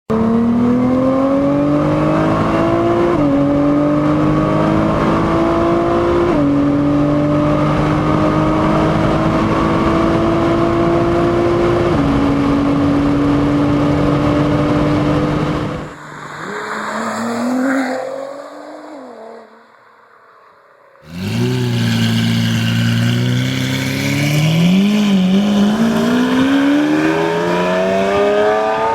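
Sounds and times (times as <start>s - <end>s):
car engine accelerating hard: 0.1s - 17.8s, 21.0s - 28.9s
muffled engine rev: 21.0s - 28.9s.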